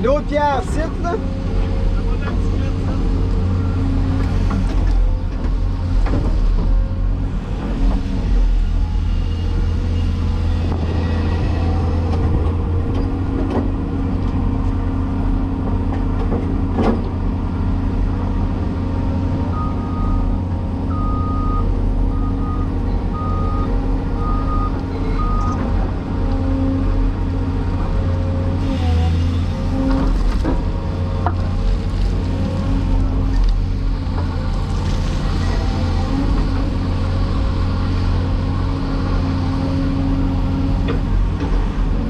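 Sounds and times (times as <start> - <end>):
excavator diesel engine running: 0.0 - 42.0
travel alarm beeping: 20.9 - 25.6.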